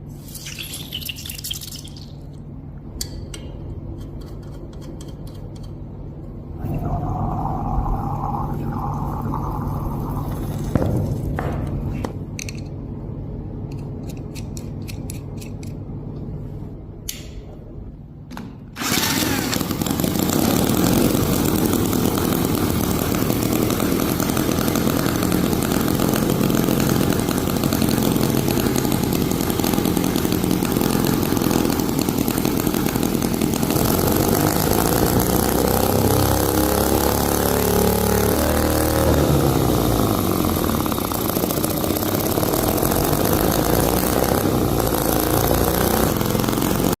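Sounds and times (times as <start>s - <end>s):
machinery low hum: 0.0s - 47.0s
loud steady machine whirring: 18.8s - 47.0s.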